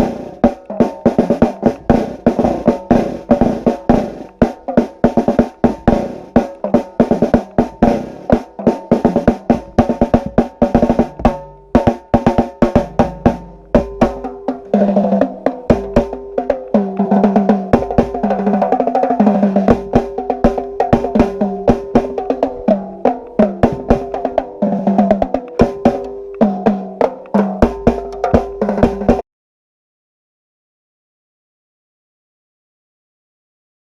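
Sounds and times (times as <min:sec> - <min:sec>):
snare drum strokes and rolls: 0:00.0 - 0:29.2
bass drum hits: 0:23.6 - 0:24.1.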